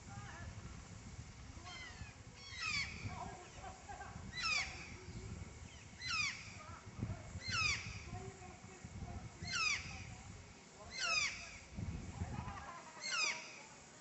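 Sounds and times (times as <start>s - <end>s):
fainter bird calls: 1.6s - 6.8s, 7.4s - 8.2s, 9.4s - 10.2s, 10.8s - 11.8s, 12.4s - 13.9s.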